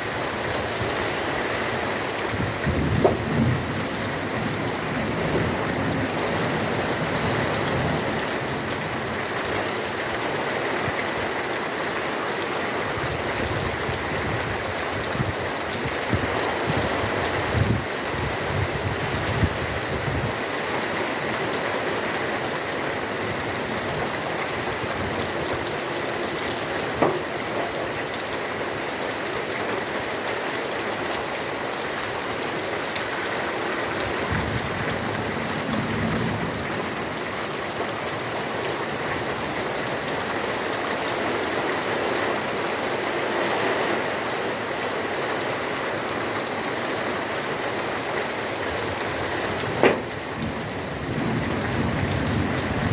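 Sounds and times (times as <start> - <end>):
heavy rain falling: 0.0 - 52.9
sharp tap: 49.8 - 50.1.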